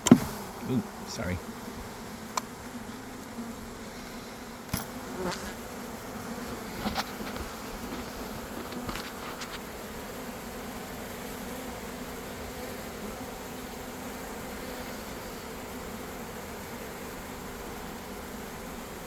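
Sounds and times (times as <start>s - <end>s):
honeybees humming: 0.0s - 19.0s
short knocks or scrapes: 6.7s - 9.7s.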